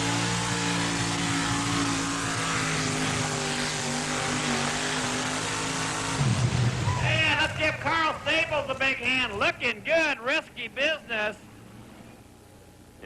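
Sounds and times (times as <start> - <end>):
truck engine running hard at high revs: 0.0 - 9.1
low rumble: 6.2 - 9.4.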